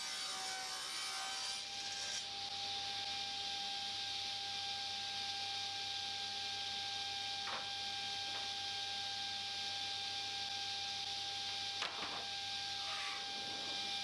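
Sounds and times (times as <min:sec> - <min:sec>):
electrical hum: 0:04.8 - 0:14.0.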